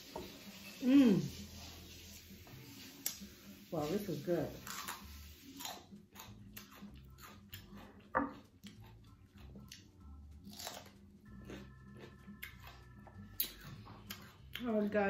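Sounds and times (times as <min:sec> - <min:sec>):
person biting and chewing: 0:04.6 - 0:14.6.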